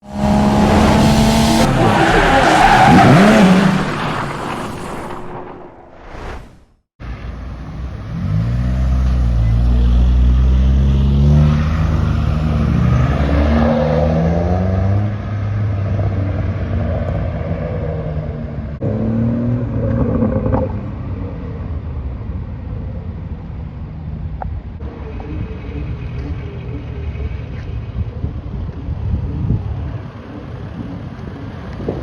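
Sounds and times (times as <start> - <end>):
loud car engine and exhaust: 0.0 - 5.4, 7.0 - 32.0.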